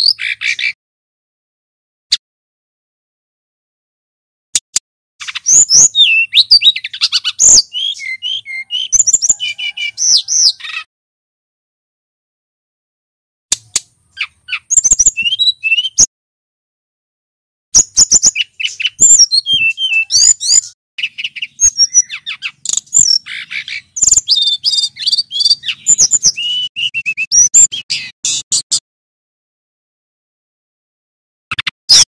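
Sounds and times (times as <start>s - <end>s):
bird singing whistles and trills: 0.0s - 0.8s, 5.2s - 10.9s, 14.1s - 16.1s, 17.8s - 28.5s.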